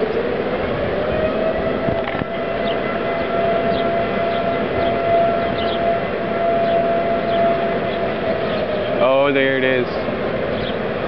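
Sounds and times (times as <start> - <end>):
steady rushing noise: 0.0 - 11.0
warning siren wailing: 0.0 - 11.0.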